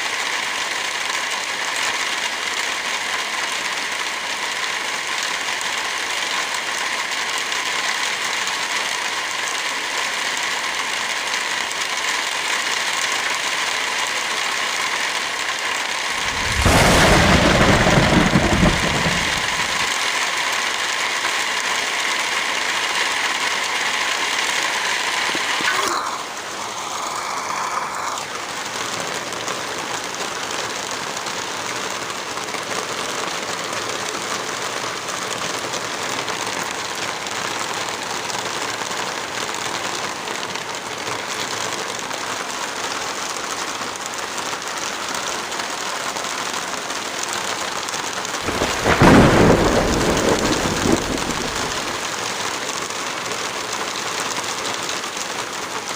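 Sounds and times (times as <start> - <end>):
heavy rain falling: 0.0 - 55.9
thunder rumble: 16.2 - 19.9, 48.4 - 52.0.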